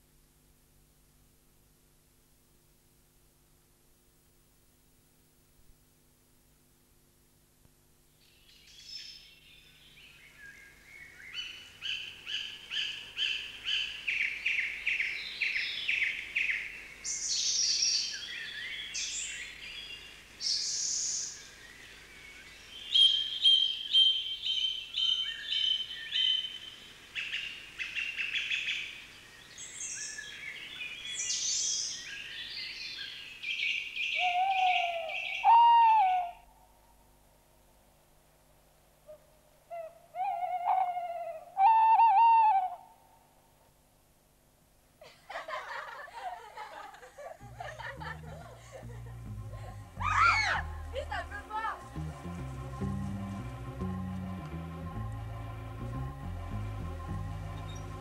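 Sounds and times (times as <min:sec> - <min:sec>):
birdsong with trills and whistles: 0:08.2 - 0:36.4, 0:50.0 - 0:50.7, 0:57.4 - 0:58.0
bird calls gliding upward: 0:34.0 - 0:36.4, 0:39.7 - 0:43.0, 0:49.6 - 0:52.4.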